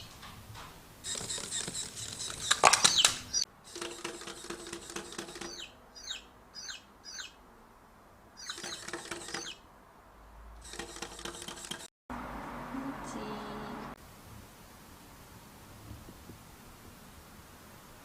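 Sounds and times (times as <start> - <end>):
light scratchy pattering: 0.0 - 5.7
baby chicks peeping: 1.0 - 7.4, 8.4 - 9.6
steady hiss: 12.5 - 18.0.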